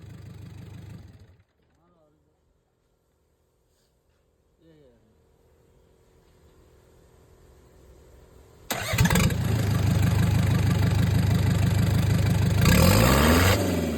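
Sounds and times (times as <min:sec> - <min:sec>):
diesel engine starting and idling: 0:08.7 - 0:13.9.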